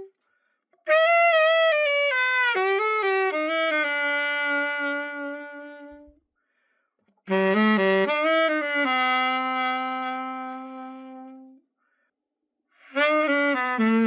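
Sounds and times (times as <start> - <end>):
alto saxophone playing: 0.9 - 6.2, 7.3 - 11.6, 12.8 - 14.0.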